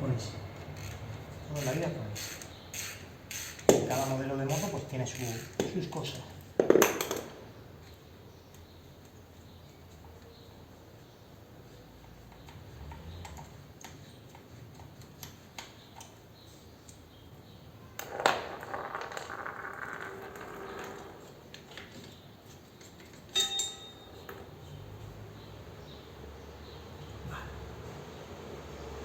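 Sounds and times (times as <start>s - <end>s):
metal tools clinking: 21.9s - 24.6s.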